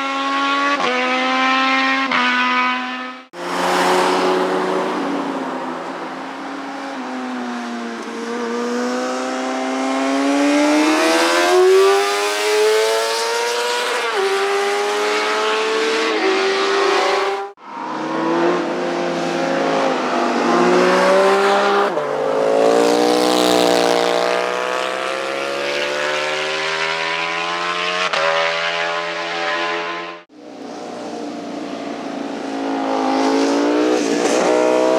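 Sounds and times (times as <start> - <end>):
motorcycle engines accelerating: 0.0 - 34.9.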